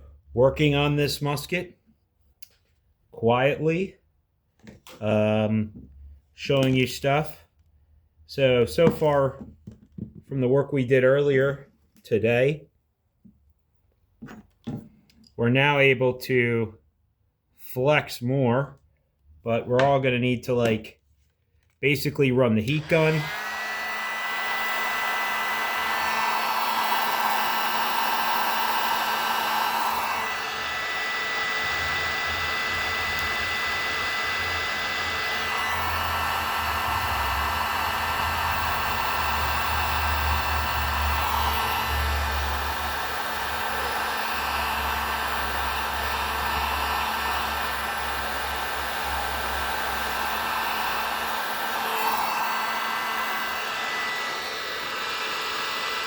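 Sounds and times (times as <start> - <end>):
heat gun blowing air: 22.6 - 56.0.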